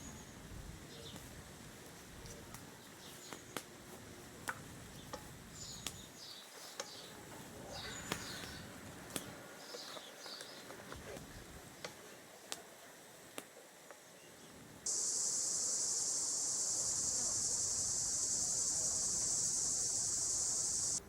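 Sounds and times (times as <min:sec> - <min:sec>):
small birds chirping: 0:02.8 - 0:03.7, 0:04.9 - 0:10.7, 0:14.2 - 0:21.0.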